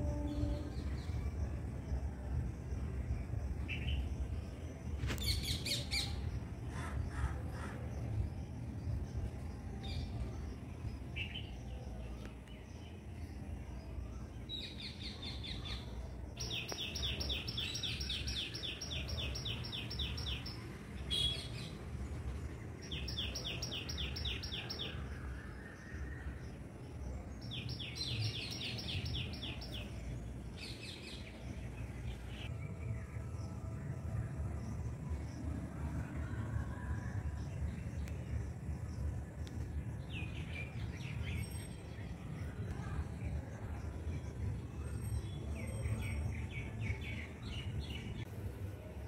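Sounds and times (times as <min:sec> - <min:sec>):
low background rumble: 0:00.0 - 0:16.4, 0:29.1 - 0:49.0.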